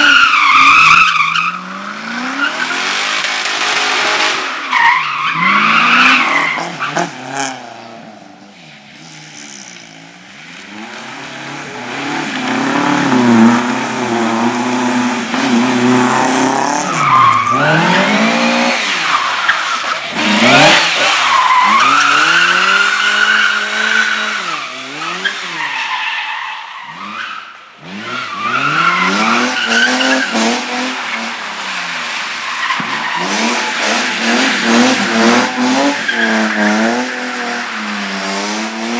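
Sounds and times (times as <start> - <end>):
car engine revving hard: 10.7 - 19.2, 20.1 - 25.6, 33.2 - 38.9.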